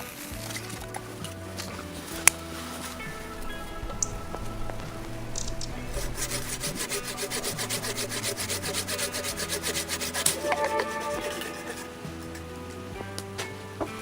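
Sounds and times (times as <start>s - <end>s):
hand tool rasping on wood: 4.9s - 12.6s.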